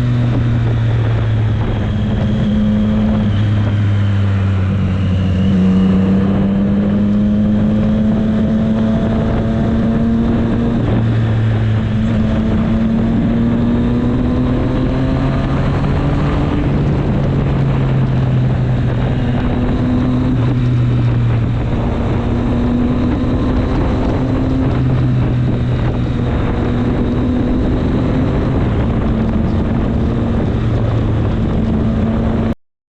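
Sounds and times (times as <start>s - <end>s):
motorcycle engine revving: 0.0s - 32.6s
wind rushing over microphone: 0.0s - 32.6s.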